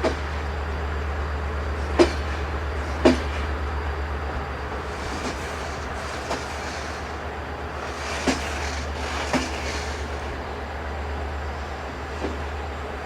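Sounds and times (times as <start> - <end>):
train wheels rumbling on rails: 0.0 - 13.0
wheels clacking over rail joints: 1.8 - 3.5, 4.9 - 10.3.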